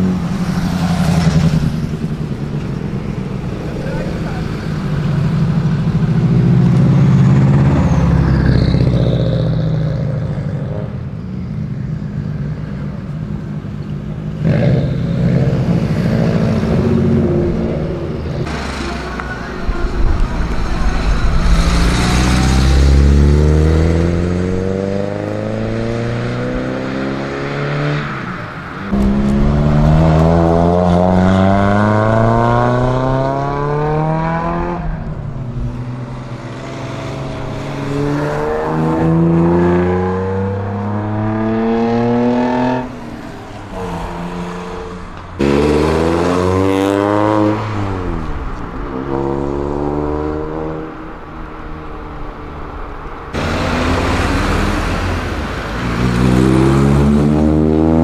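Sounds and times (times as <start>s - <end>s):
cars accelerating hard: 14.4s - 58.0s
engines revving through gears: 20.9s - 28.1s, 43.8s - 48.3s, 53.4s - 58.0s.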